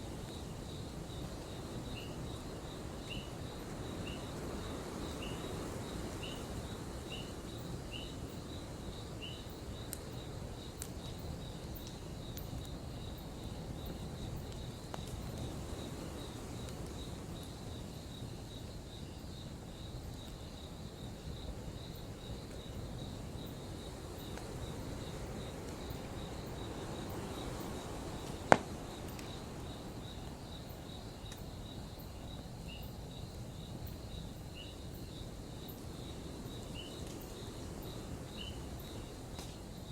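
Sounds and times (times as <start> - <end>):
campfire hissing and crackling: 0.0 - 39.9
crickets chirping: 0.0 - 39.9
loud pop from fire: 28.4 - 28.8.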